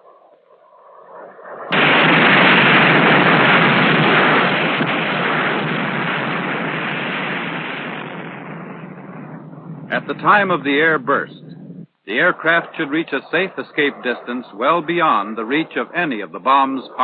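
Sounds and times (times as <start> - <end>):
long dense rush of noise: 0.8 - 17.0
explosion blast: 1.7 - 11.9.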